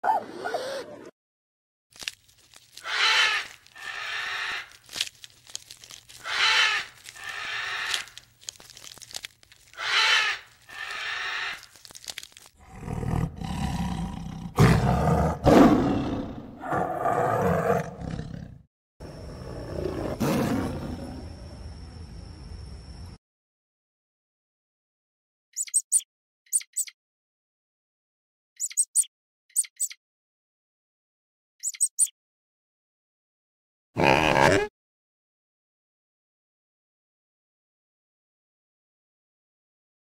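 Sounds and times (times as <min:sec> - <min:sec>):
animal calls: 0:02.8 - 0:04.8, 0:06.1 - 0:08.3, 0:09.6 - 0:11.8.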